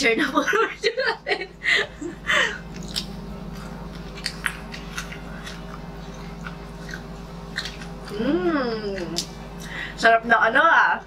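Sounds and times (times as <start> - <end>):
person chewing crispy food: 2.6 - 8.3.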